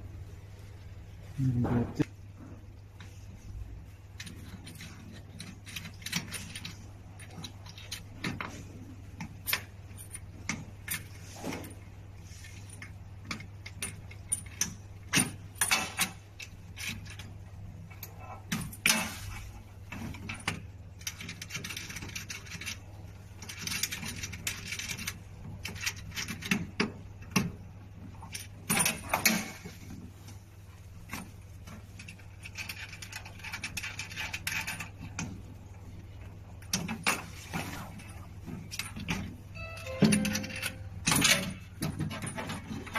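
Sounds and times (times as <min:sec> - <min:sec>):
steady low hum: 0:00.0 - 0:42.9
metal tools clinking and rattling: 0:36.7 - 0:42.9.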